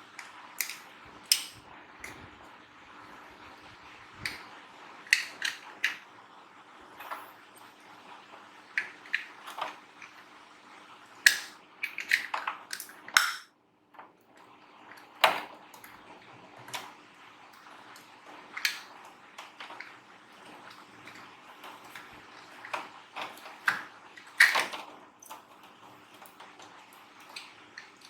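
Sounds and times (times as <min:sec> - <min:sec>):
clicks and taps of tools: 0:00.2 - 0:02.2, 0:11.3 - 0:13.5.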